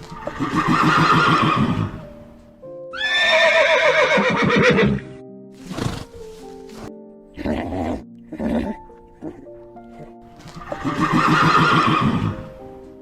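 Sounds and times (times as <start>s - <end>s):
background music: 0.0s - 13.0s
horse whinnying: 0.2s - 2.0s, 2.9s - 6.1s, 7.4s - 12.5s.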